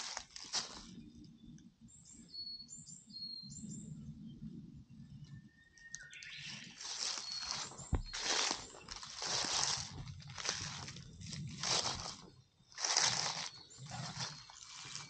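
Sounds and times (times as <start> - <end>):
small birds chirping: 0.0 - 15.0
rustling: 6.8 - 15.0
low rumble: 8.1 - 15.0.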